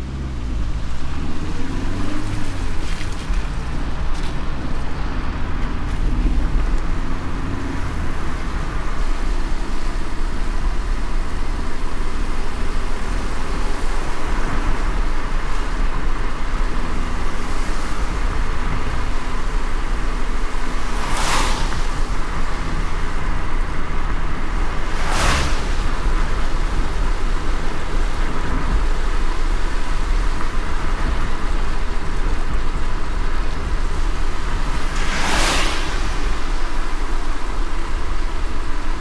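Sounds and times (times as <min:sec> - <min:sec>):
engine and tyre rumble: 0:00.0 - 0:39.0
rain hiss: 0:00.0 - 0:39.0.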